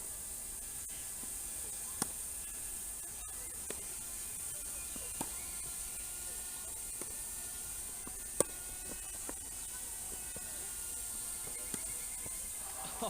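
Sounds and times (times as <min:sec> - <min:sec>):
steady high hiss: 0:00.0 - 0:13.0
racket hitting tennis ball: 0:01.9 - 0:02.6, 0:03.5 - 0:13.0.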